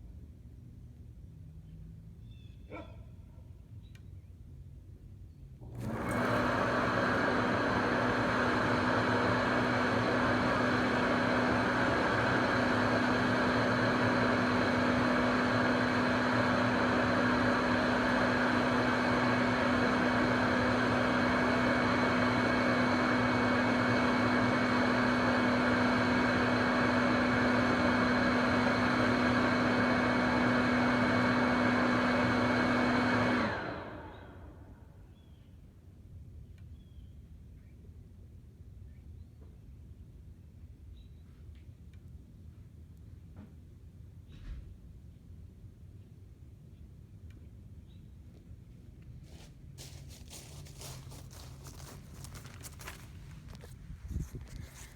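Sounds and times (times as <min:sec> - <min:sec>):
electric blower motor running: 0:05.6 - 0:34.8, 0:49.3 - 0:54.9.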